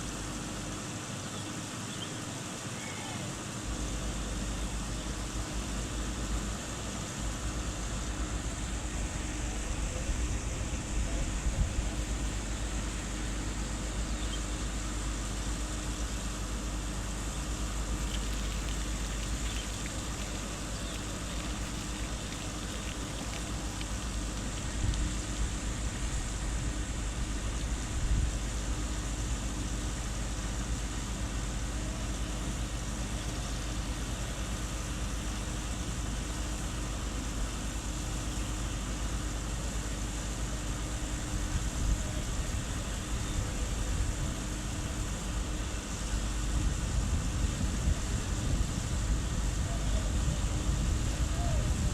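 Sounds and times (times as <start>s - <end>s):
ship engines droning: 3.3s - 26.8s.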